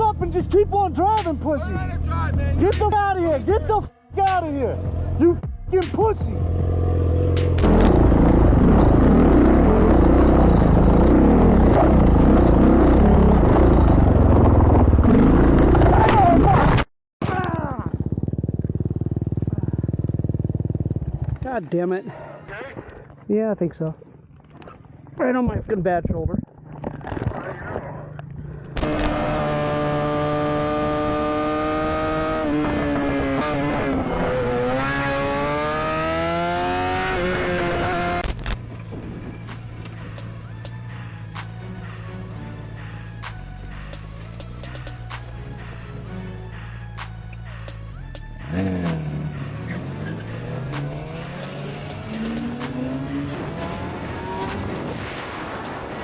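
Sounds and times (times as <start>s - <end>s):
motorcycle engine running: 6.2s - 16.4s, 17.3s - 21.6s, 28.8s - 56.0s
heavy wind noise: 38.5s - 39.8s, 53.3s - 56.0s.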